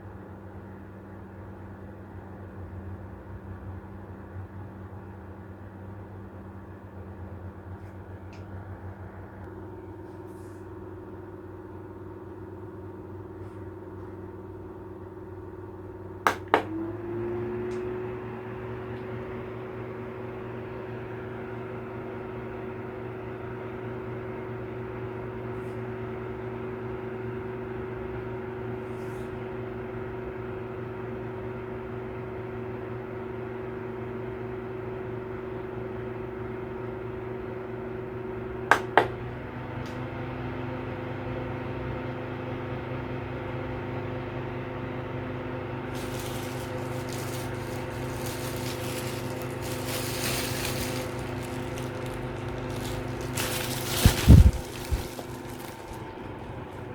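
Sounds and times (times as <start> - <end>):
fan motor humming: 45.4 - 56.9.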